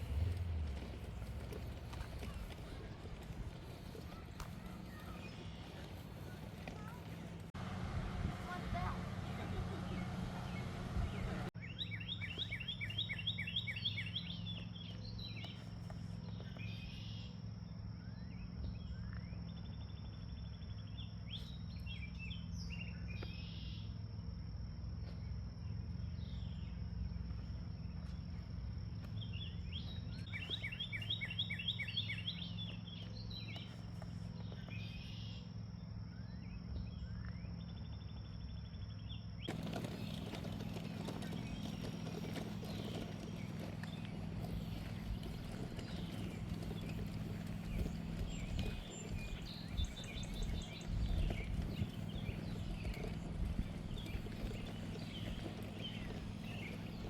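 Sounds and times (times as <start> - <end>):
low steady rumble: 0.0 - 11.6, 23.4 - 57.0
bird chirps: 8.8 - 17.4, 29.0 - 57.0
bird trill: 39.4 - 57.0.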